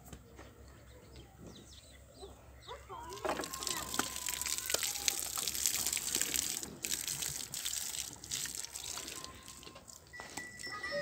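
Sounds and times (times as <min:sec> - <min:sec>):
water gushing and splashing: 0:03.1 - 0:10.1.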